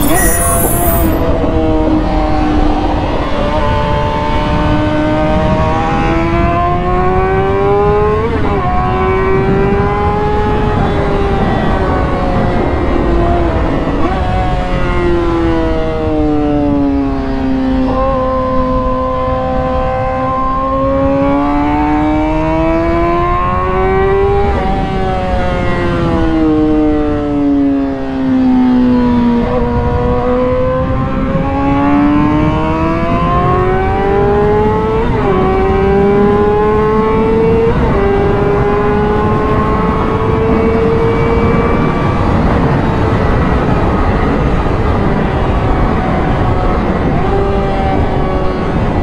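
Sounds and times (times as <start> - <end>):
motorcycle engine at speed: 16.6 - 49.0.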